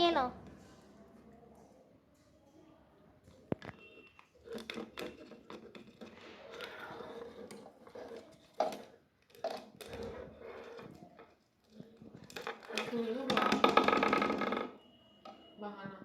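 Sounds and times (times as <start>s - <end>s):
small objects clicking and knocking: 3.3s - 14.8s.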